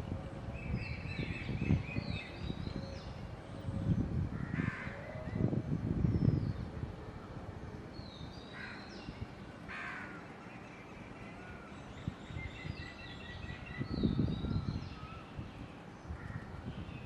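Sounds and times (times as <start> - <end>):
birds calling: 8.0 - 17.0.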